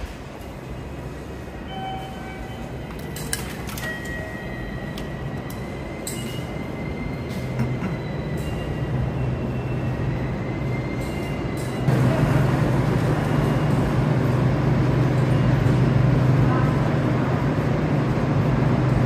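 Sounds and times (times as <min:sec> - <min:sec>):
electric train humming: 0:00.0 - 0:19.0.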